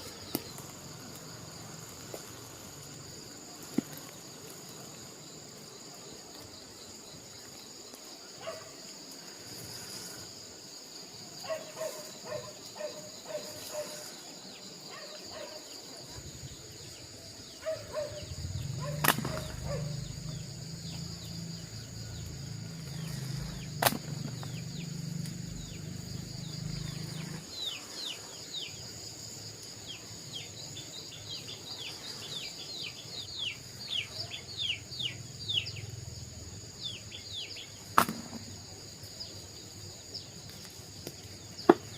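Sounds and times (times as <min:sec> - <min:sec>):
insects buzzing: 0:00.0 - 0:41.9
birds chirping: 0:11.4 - 0:41.9.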